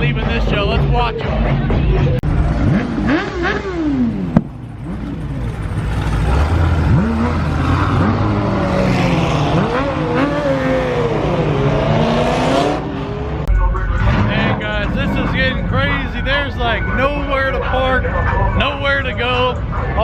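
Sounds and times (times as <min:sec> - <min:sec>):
car engines revving: 0:00.0 - 0:20.0
exhaust pop: 0:04.2 - 0:06.2.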